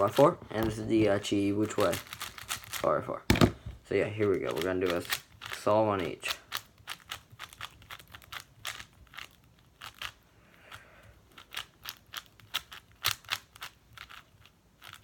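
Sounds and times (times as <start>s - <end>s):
plastic puzzle cube clicking: 1.7s - 3.5s, 4.3s - 10.2s, 11.3s - 15.0s.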